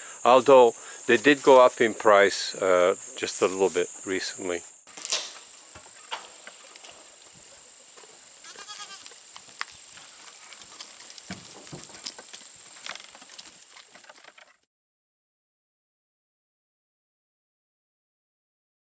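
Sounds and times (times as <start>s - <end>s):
goat bleating: 8.2s - 9.2s.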